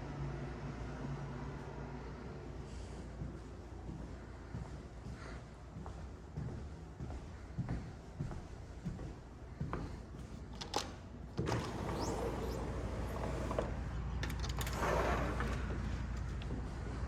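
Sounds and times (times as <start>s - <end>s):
low outdoor street rumble: 0.0s - 17.0s
door opening: 10.5s - 16.4s.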